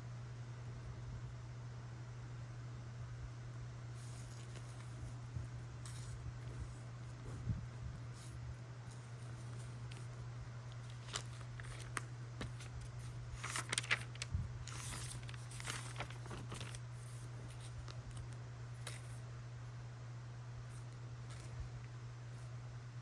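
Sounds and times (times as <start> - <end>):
paper rustling: 9.2 - 19.1.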